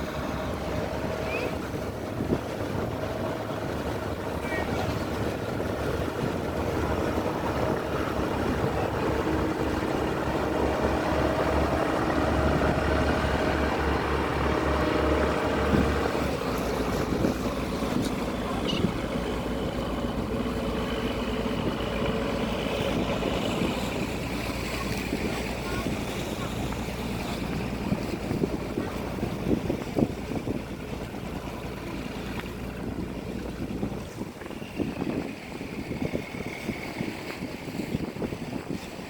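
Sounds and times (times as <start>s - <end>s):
boat engine droning: 0.0s - 39.0s.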